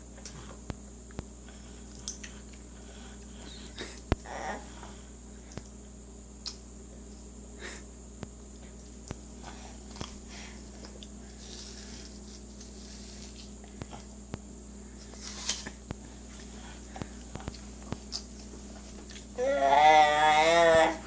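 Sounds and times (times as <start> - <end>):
electrical hum: 0.0 - 21.0
apple crunching: 15.0 - 15.8, 17.0 - 19.4.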